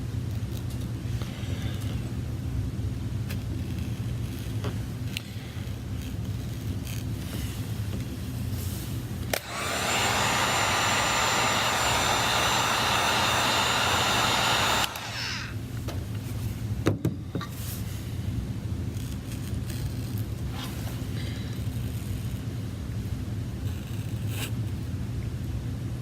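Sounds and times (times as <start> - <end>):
heat gun blowing with fan whine: 3.7 - 16.5.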